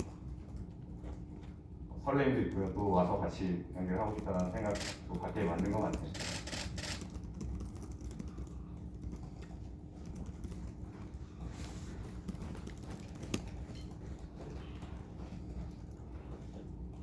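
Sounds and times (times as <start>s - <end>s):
low room hum: 0.0s - 17.0s
keyboard typing clicks: 4.0s - 10.8s.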